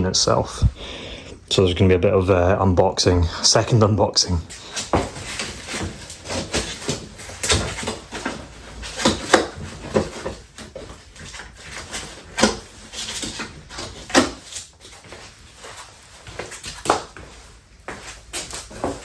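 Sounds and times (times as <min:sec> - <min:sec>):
cardboard and foam packaging rustling: 0:04.5 - 0:19.0.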